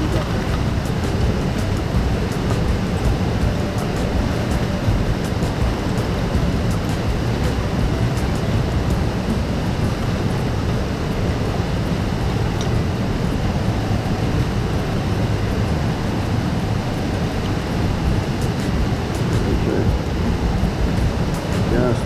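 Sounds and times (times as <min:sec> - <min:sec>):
loud rushing noise with rumble: 0:00.0 - 0:22.0.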